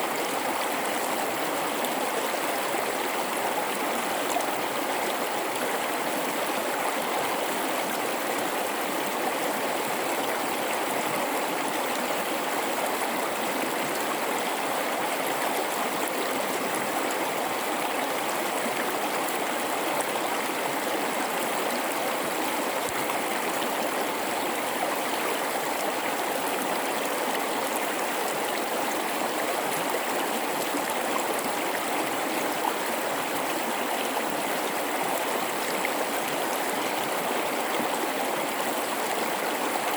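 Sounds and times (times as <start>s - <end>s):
rushing river water: 0.0s - 39.9s.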